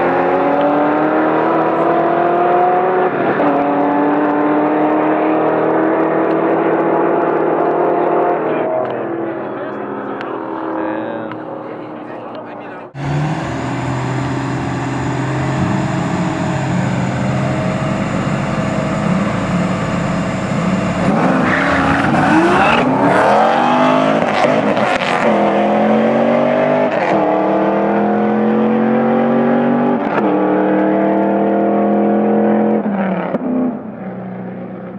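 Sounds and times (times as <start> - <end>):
muscle car engine revving: 12.9 - 33.4.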